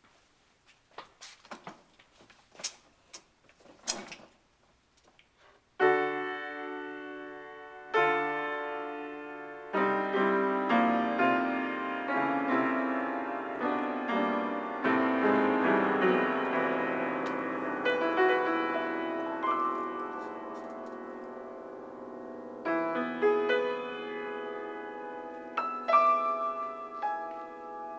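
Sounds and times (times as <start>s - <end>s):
piano improvisation: 5.7s - 27.9s.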